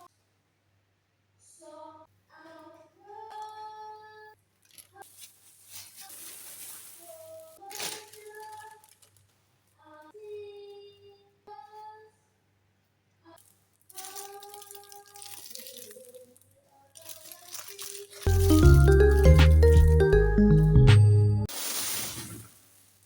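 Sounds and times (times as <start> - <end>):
hiss: 21.5 - 23.0.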